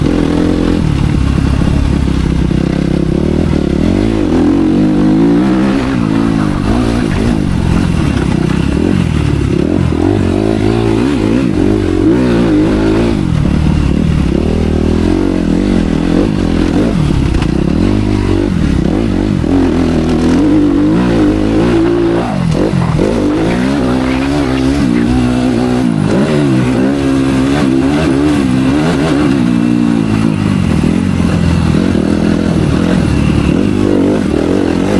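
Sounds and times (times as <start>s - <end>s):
motocross bike engine revving: 0.0s - 34.9s.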